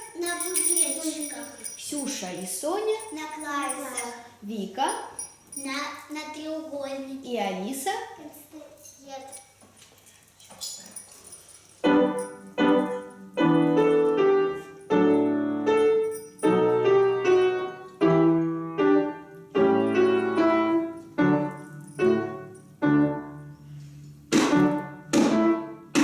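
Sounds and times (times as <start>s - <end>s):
piano playing a polka: 11.8s - 26.0s
sharp percussion hits: 24.3s - 26.0s.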